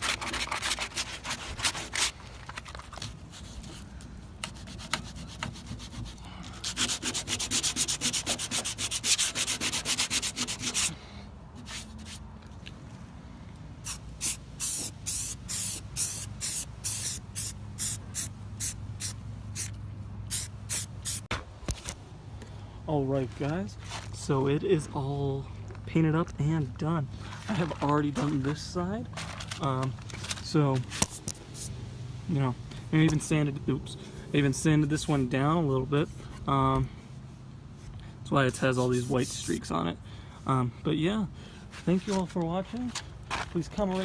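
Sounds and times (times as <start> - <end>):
sandpaper sanding body filler: 0.0 - 2.1, 4.5 - 11.0.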